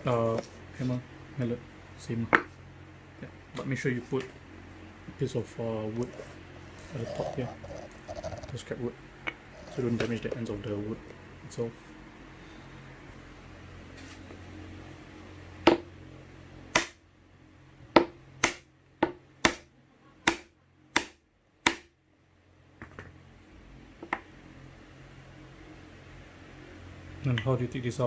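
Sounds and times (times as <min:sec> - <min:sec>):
mallet knocking on wood block: 0:15.7 - 0:15.9, 0:16.7 - 0:17.0, 0:18.0 - 0:19.7, 0:20.3 - 0:21.9.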